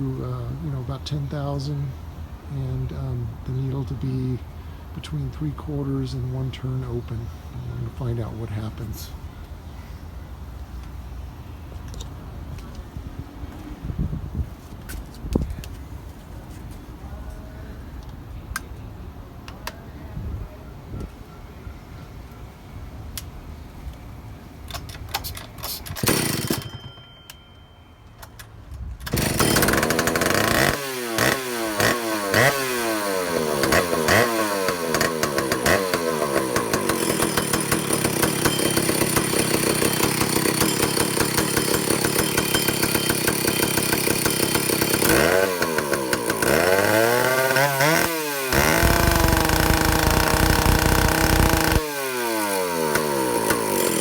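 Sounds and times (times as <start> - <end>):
chainsaw engine revving: 26.0 - 26.7, 29.1 - 54.0.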